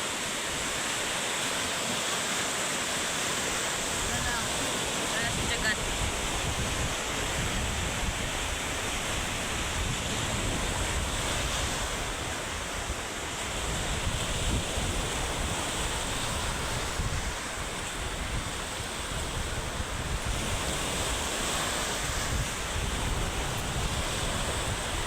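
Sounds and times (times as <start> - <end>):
heavy surf rushing: 0.0 - 25.0
wind buffeting microphone: 3.7 - 25.0.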